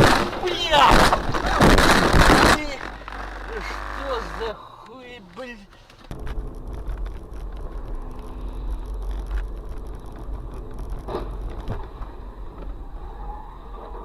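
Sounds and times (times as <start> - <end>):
road rumble and engine hum: 0.0 - 14.0.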